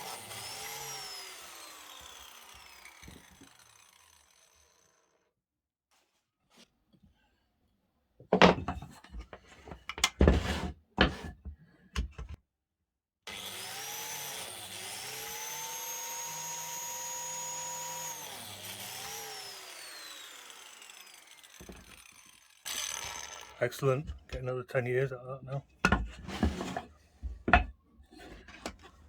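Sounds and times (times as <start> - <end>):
power tool motor whining: 0.0 - 5.0, 13.3 - 24.2.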